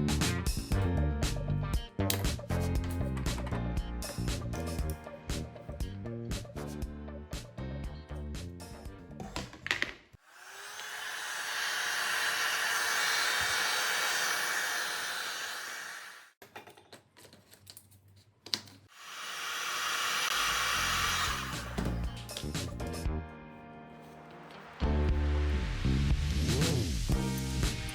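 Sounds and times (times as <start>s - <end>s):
small electric motor whirring: 10.2s - 16.4s, 18.9s - 22.3s.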